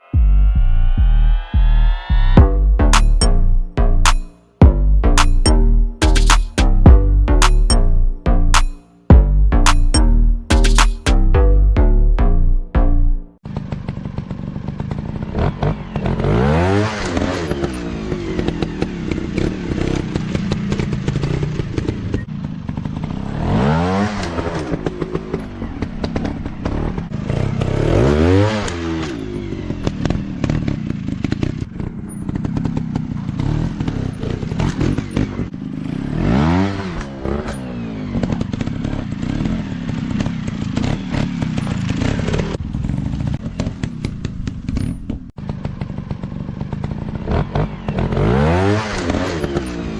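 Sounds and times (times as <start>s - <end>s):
dirt bike engine revving: 12.6s - 49.9s.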